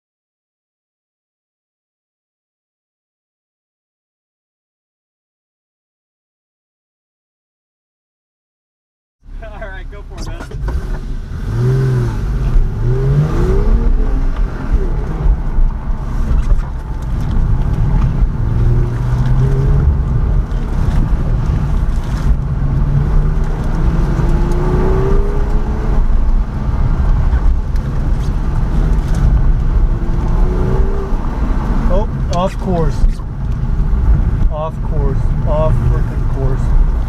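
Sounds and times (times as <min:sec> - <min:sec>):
vehicle engine revving: 0:10.0 - 0:37.0.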